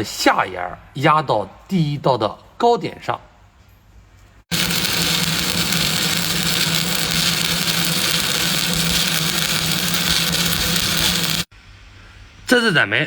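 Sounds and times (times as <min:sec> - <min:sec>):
welding arc crackling and hissing: 0:04.5 - 0:11.5
steady low hum: 0:04.5 - 0:11.8.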